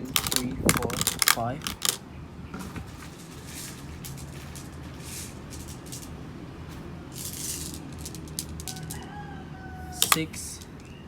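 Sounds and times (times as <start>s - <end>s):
steady low hum: 0.0s - 11.0s
short rustles: 2.6s - 6.1s.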